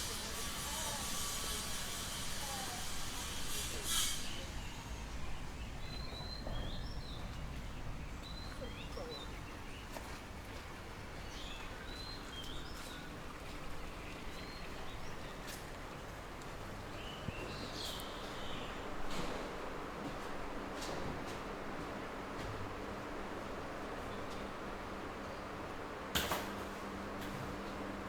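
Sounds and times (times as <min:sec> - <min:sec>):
birds chirping: 0:04.6 - 0:16.1, 0:16.8 - 0:19.4.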